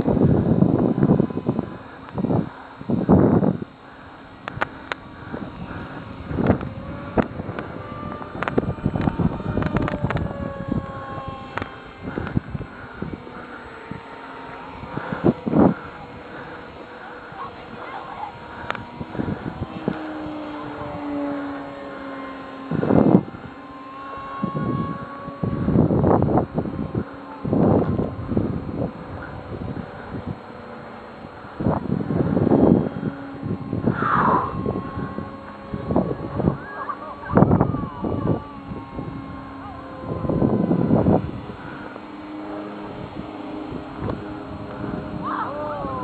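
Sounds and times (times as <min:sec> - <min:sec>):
model airplane engines droning: 0:00.0 - 0:46.0
loud rush of noise: 0:31.3 - 0:46.0.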